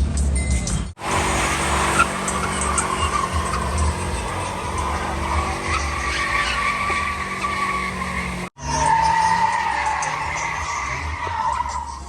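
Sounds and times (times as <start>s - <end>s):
car engine rumble: 0.0s - 12.0s
car tires squealing: 1.0s - 12.0s.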